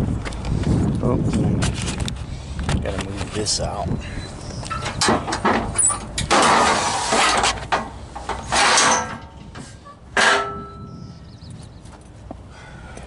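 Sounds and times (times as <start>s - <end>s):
straps and metal hardware rattling: 4.6s - 11.0s
metal scraping: 4.7s - 11.1s
ringing metal clank: 10.2s - 11.1s.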